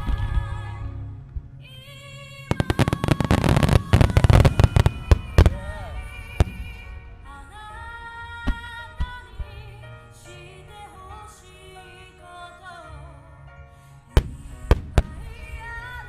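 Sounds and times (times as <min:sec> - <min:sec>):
music with singing: 0:00.0 - 0:16.0
fireworks bangs: 0:02.5 - 0:09.2, 0:14.2 - 0:16.0.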